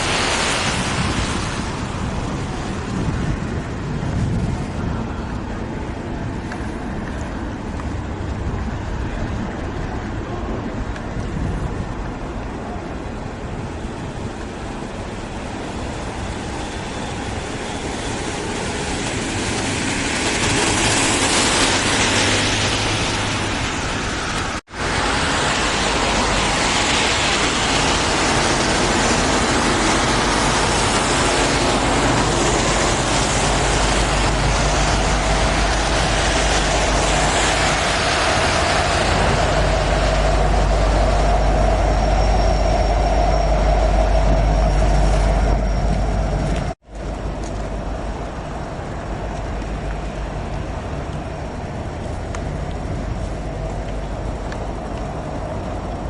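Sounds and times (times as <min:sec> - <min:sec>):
deep rumble: 0:00.0 - 0:56.0
freight train rolling past: 0:00.0 - 0:56.0
steady mid-pitched tone: 0:28.3 - 0:46.8.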